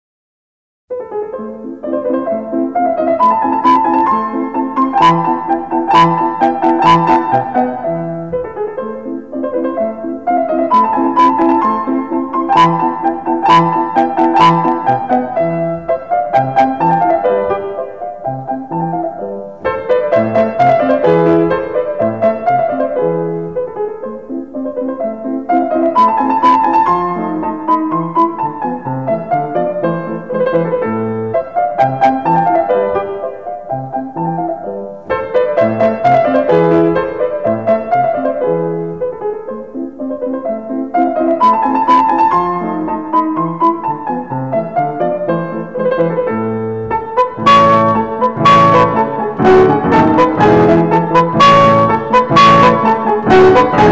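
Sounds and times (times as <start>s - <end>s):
background piano music: 0.9s - 53.9s.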